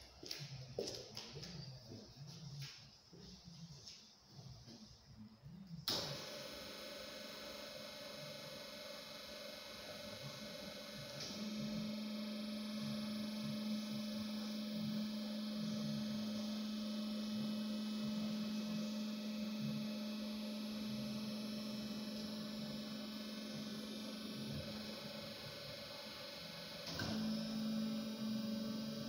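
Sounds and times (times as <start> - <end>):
band saw humming: 9.8 - 29.0.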